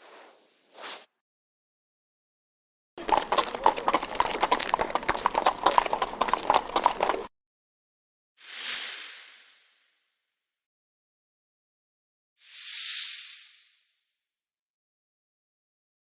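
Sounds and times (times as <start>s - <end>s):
short whooshing hiss: 0.0s - 1.1s, 8.4s - 9.7s, 12.4s - 13.9s.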